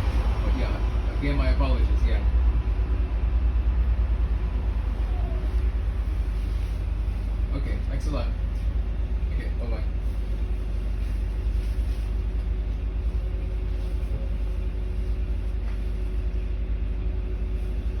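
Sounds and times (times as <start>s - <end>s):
road noise: 0.0s - 16.1s
bus engine rumble: 0.0s - 18.0s.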